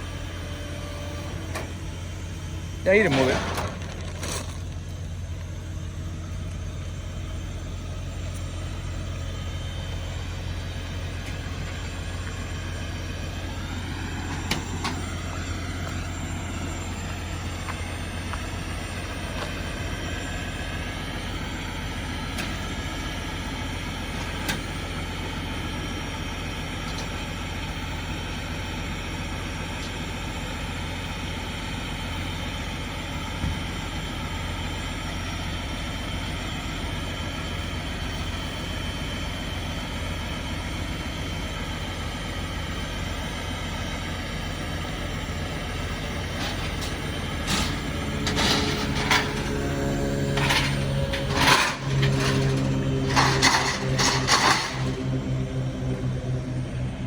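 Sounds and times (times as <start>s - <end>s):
truck engine rumbling: 0.0s - 57.0s
sharp metallic clanks: 47.4s - 55.2s.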